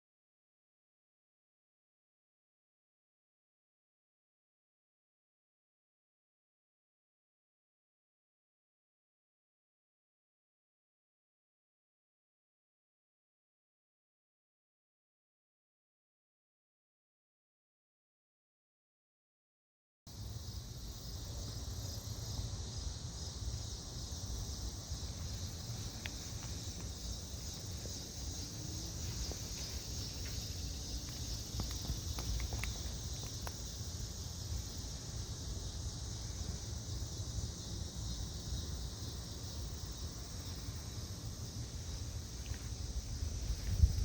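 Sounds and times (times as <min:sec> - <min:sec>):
insects shrilling: 0:20.1 - 0:44.0
faint clicks: 0:31.0 - 0:33.6
wind rumble on microphone: 0:42.6 - 0:44.0.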